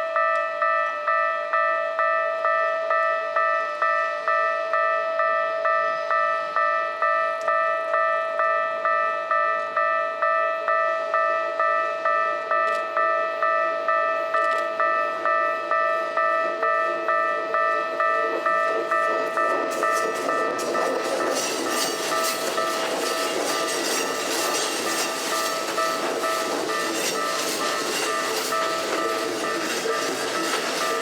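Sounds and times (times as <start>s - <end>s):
level crossing bell ringing: 11.3s - 31.0s
train wheels clicking on rails: 12.5s - 31.0s.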